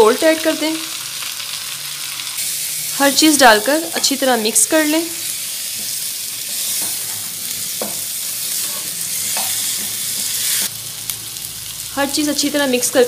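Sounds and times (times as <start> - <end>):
chicken sizzling in hot oil: 0.0 - 13.0
spatula scraping a pan: 5.8 - 10.7.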